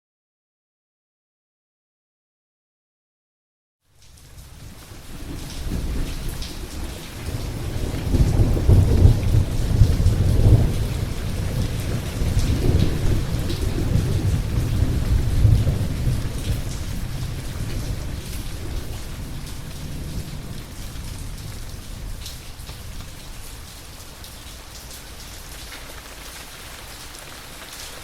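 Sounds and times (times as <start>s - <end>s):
steady rain hiss: 3.8s - 28.0s
thunder rumbling: 5.1s - 24.3s.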